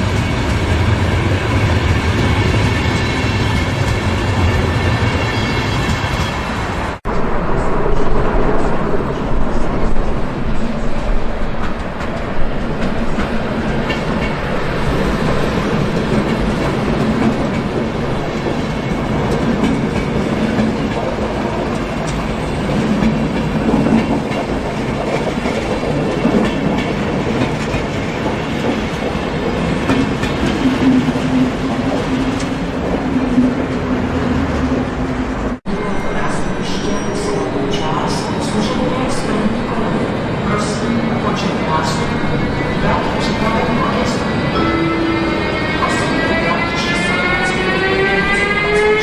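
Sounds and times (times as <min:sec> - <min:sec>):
train rumbling past: 0:00.0 - 0:49.0
low hum: 0:07.0 - 0:12.5.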